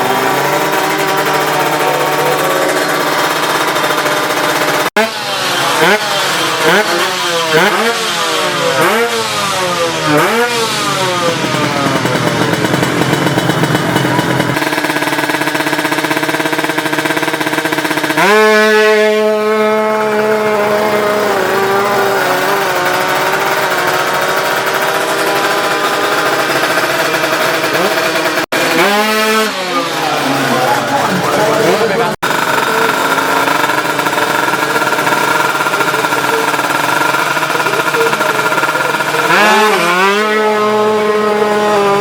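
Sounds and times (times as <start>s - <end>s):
loud high-revving engine: 0.0s - 42.0s
two-stroke engines revving: 0.0s - 42.0s.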